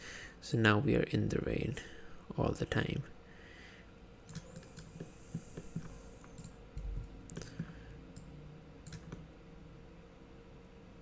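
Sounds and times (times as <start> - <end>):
faint steady hum: 0.0 - 11.0
computer mouse and keyboard clicks: 4.3 - 9.2.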